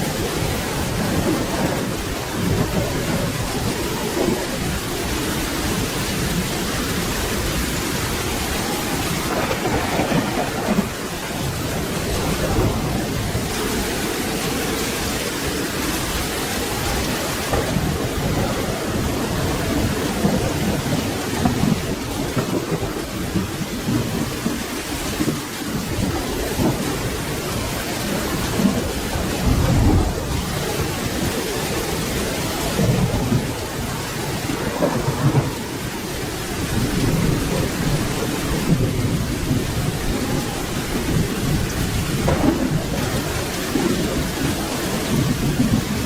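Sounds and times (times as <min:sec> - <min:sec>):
rolling thunder rumble: 0:00.0 - 0:46.0
steady rain falling: 0:00.0 - 0:46.0.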